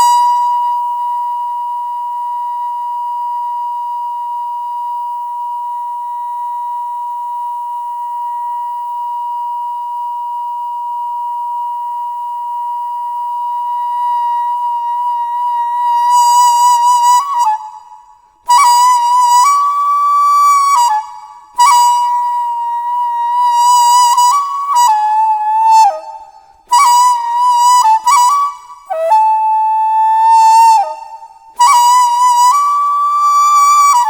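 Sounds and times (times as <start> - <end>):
bamboo flute long note: 0.0 - 34.0.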